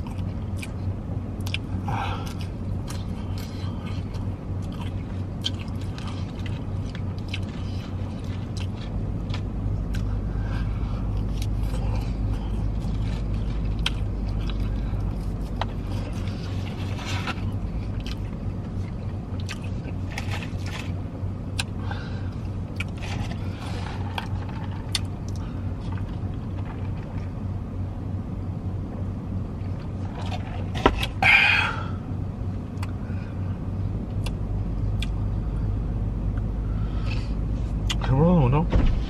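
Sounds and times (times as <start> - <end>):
person chewing: 0.0 - 27.3, 32.7 - 33.0, 34.2 - 35.2
low hum inside car: 0.0 - 39.0.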